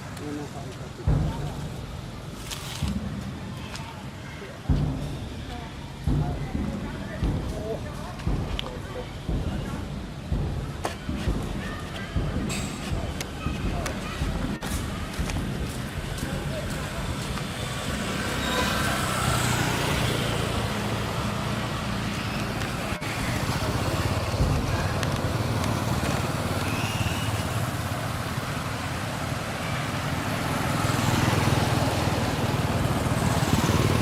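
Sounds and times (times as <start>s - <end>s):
vehicle engines in traffic: 0.0s - 34.0s.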